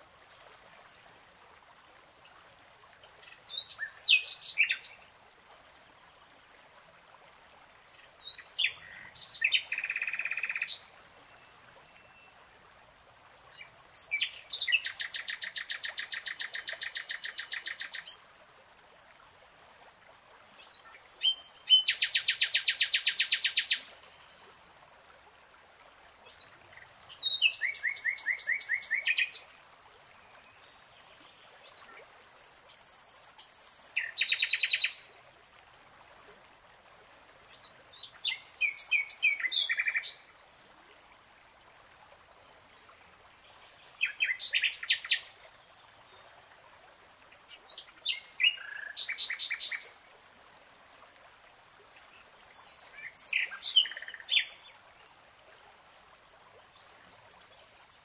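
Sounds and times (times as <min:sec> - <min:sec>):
songbird chirping: 0:02.0 - 0:05.7, 0:07.9 - 0:12.6, 0:13.5 - 0:18.2, 0:26.2 - 0:35.1, 0:37.5 - 0:40.3, 0:42.2 - 0:46.3, 0:47.4 - 0:50.1, 0:51.9 - 0:55.8, 0:56.5 - 0:58.0.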